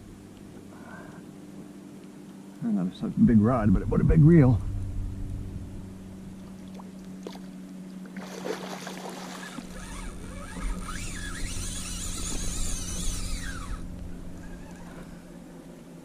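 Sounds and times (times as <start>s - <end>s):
fishing reel drag screaming: 8.2s - 15.3s.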